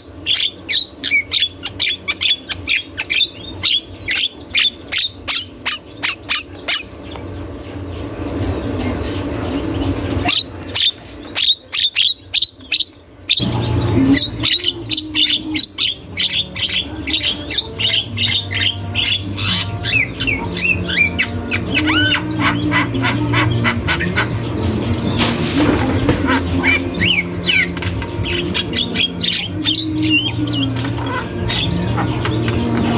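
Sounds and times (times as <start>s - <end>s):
steady low hum: 0.0s - 32.9s
myna calling: 10.2s - 25.1s, 25.9s - 32.9s.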